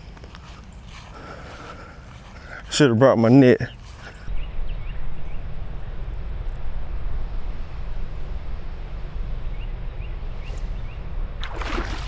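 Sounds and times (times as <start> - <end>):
high steady whine: 4.3 - 11.4.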